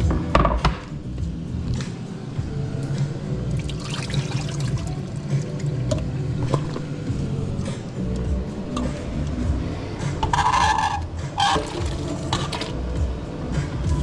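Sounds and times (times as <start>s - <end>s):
water trickling: 3.5s - 6.8s, 11.4s - 12.8s.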